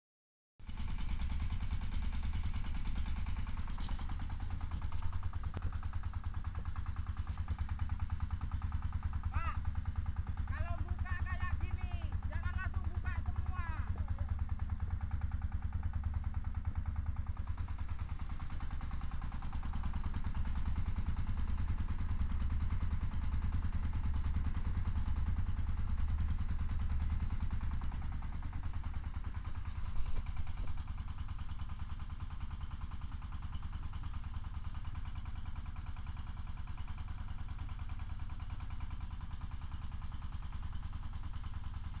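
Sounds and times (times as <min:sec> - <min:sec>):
mixing machine engine running: 0:00.6 - 0:42.0
short clatter: 0:29.4 - 0:31.0.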